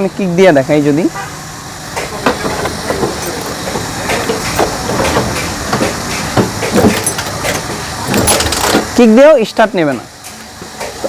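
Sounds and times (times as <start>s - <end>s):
motorcycle kick-starter knocking: 2.0s - 9.0s.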